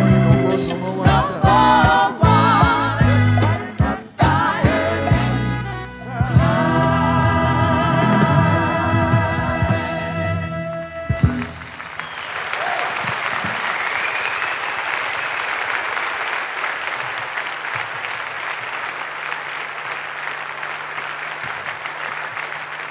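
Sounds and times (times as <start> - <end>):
band music: 0.0 - 12.2
whistle from crowd: 11.0 - 15.8
audience applauding: 11.2 - 22.9.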